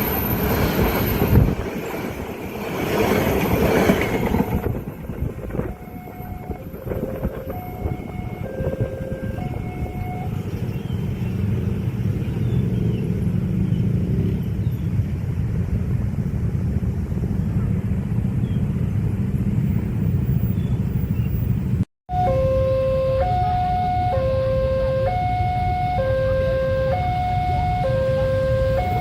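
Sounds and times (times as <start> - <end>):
train wheels rumbling on rails: 0.0 - 18.2
two-tone crossing warning alarm: 4.3 - 10.7, 22.1 - 29.0.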